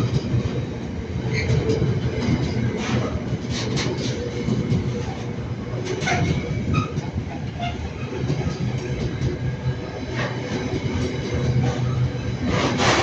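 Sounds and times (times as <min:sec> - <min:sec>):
freight train rumbling past: 0:00.0 - 0:13.0
wheels clicking over rail joints: 0:00.0 - 0:13.0.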